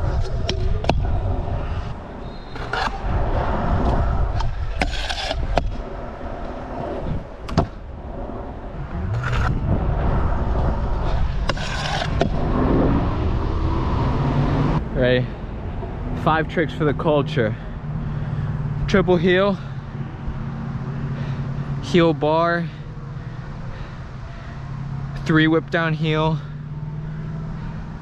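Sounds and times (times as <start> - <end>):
scooter wheels rolling on concrete: 0.0 - 13.7
scooter deck clacking: 7.4 - 7.8.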